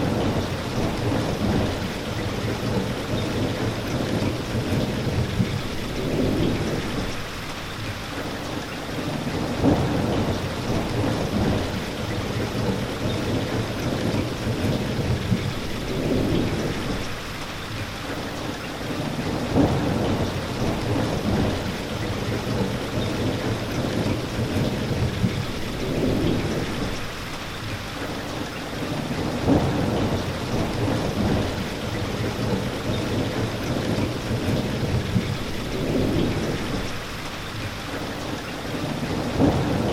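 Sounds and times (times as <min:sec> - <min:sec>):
thunder rumbling: 0:00.0 - 0:07.4, 0:09.4 - 0:17.2, 0:19.2 - 0:27.2, 0:29.1 - 0:37.2, 0:39.0 - 0:39.9
rain pouring: 0:00.0 - 0:39.9
sharp thunder claps: 0:09.4 - 0:17.2, 0:19.3 - 0:27.1, 0:29.2 - 0:37.1, 0:39.1 - 0:39.9.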